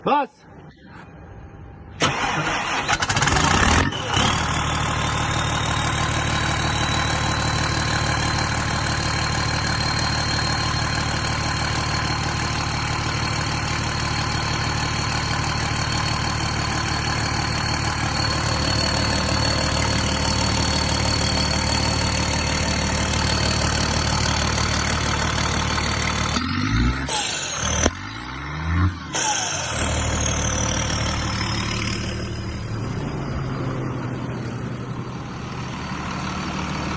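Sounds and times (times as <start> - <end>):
diesel engine starting and running: 0.5 - 36.9
high whine: 28.9 - 36.1.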